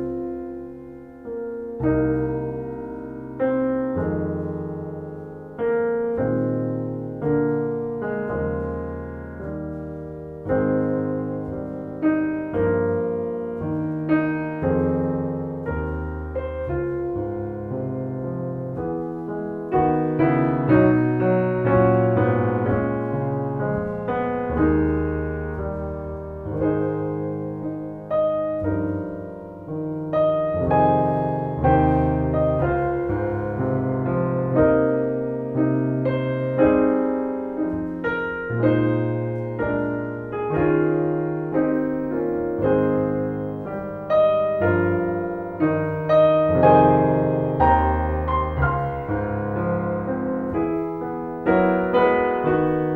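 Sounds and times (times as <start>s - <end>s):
slow gentle piano piece: 0.0s - 52.9s.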